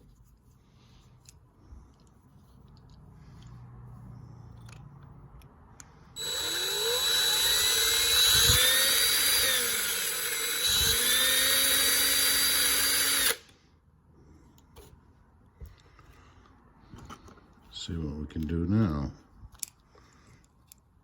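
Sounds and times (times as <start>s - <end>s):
electric drill drilling metal: 6.2s - 13.5s.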